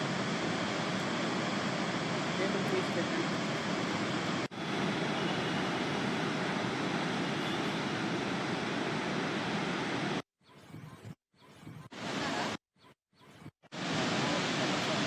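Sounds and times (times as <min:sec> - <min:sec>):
water rushing through spillway: 0:00.0 - 0:10.2, 0:13.7 - 0:15.0.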